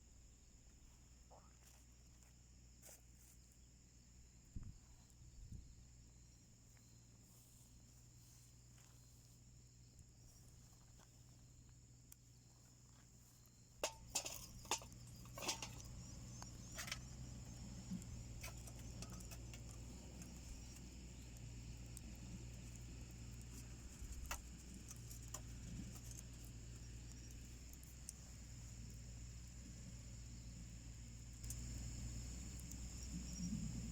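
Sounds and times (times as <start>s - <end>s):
wood fire crackling: 13.8s - 33.9s.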